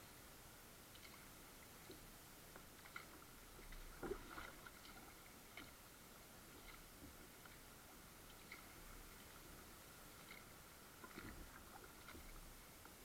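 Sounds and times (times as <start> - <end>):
drips and ticks from paddle: 0.8 - 5.8.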